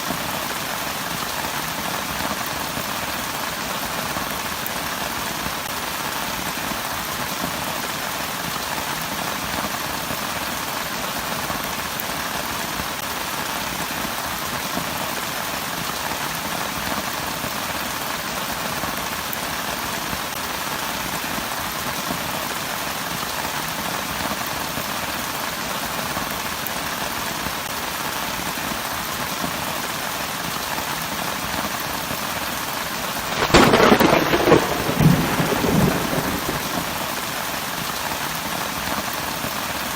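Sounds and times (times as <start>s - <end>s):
steady rain falling: 0.0s - 39.9s
thunder clap rumbling: 33.2s - 37.8s.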